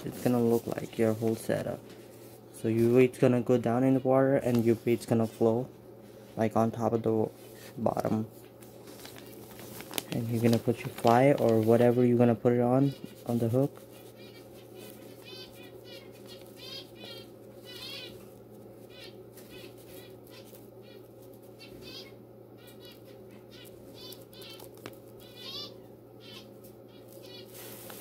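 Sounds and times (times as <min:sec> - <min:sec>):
steady low hum: 0:00.0 - 0:28.0
small bird chirping: 0:13.9 - 0:18.3, 0:18.9 - 0:27.6.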